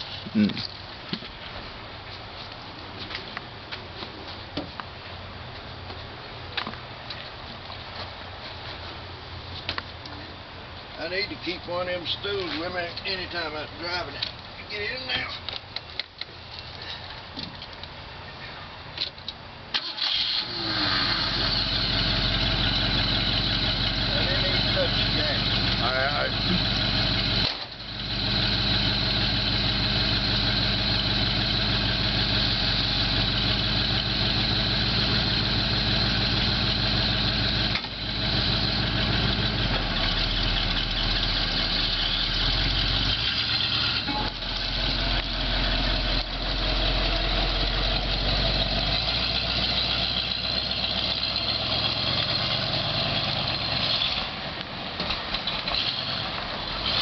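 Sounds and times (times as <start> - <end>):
old truck engine running: 19.8 - 54.4.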